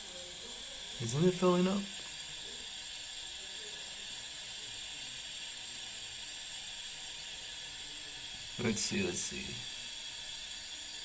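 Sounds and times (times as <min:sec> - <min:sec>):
toilet tank refilling hiss: 0:00.0 - 0:11.0.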